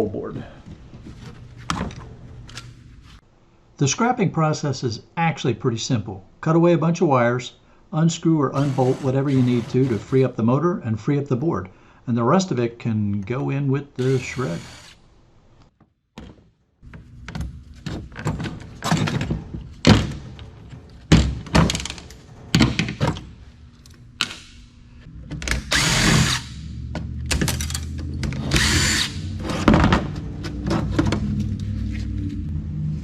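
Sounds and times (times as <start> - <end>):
power driver bursts: 14.0 - 15.0, 25.6 - 26.6, 28.4 - 29.2
metal parts and tools clattering: 27.3 - 28.4.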